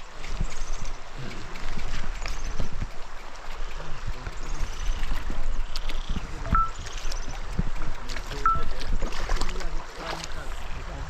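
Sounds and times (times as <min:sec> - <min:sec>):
water splashing from wading: 0:00.0 - 0:11.0
short high beeps: 0:06.5 - 0:06.8, 0:08.4 - 0:08.7.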